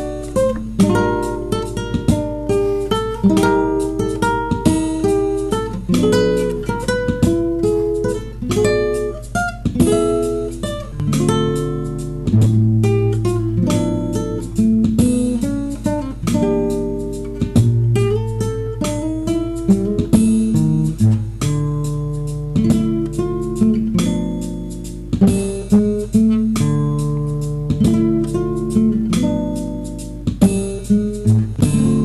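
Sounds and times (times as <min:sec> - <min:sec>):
acoustic guitar strumming: 0:00.0 - 0:32.0
low bass line: 0:31.3 - 0:32.0.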